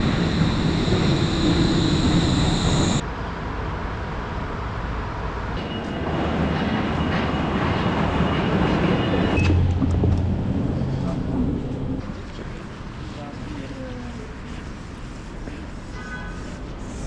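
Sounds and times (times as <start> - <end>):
train rumbling with high whine: 0.0 - 3.0.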